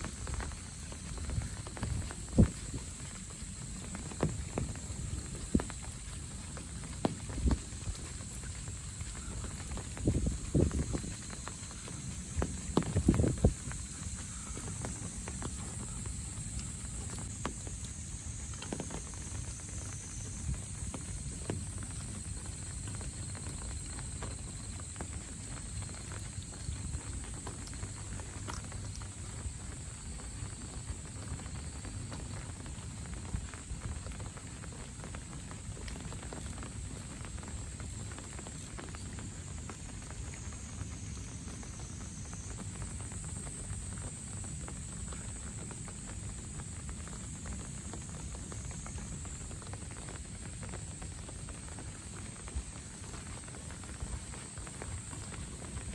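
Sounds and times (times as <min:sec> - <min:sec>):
footsteps on a path: 0:00.0 - 0:28.9
rain pattering: 0:00.0 - 0:55.9.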